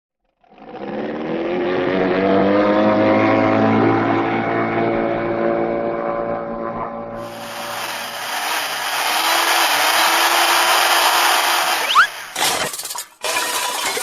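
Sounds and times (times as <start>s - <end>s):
electric drill motor whining: 7.2s - 12.4s.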